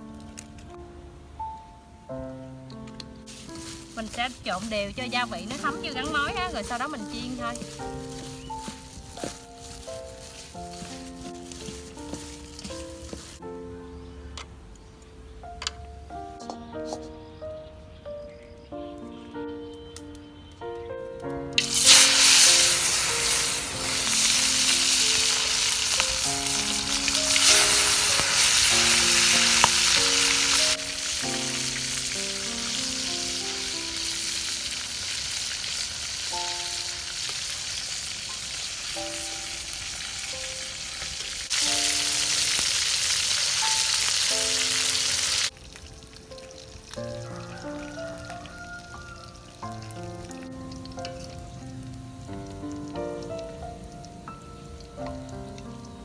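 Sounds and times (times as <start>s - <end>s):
deep-frying sizzle in hot oil: 3.2s - 13.5s, 21.6s - 56.0s.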